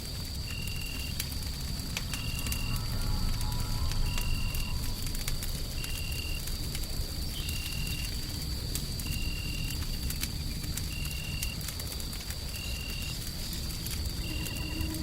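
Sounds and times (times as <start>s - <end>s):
wood fire crackling: 0.0s - 15.0s
faint high whine: 14.1s - 15.0s.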